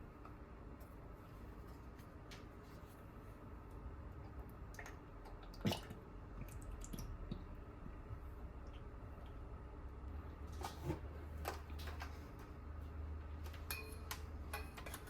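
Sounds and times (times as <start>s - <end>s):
low room hum: 0.0s - 15.0s
small kitchen clicks: 10.6s - 12.6s, 13.4s - 15.0s.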